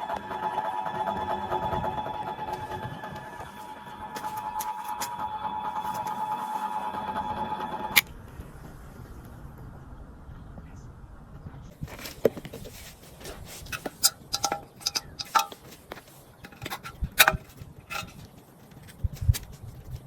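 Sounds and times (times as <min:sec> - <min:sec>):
metal tools clinking: 0:13.5 - 0:18.3.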